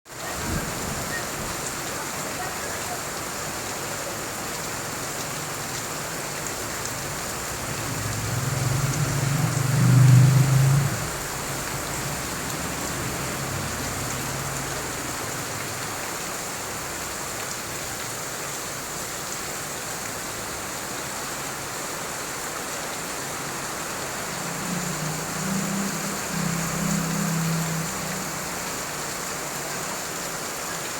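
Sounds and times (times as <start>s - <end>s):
heavy rain pouring: 0.1s - 30.9s.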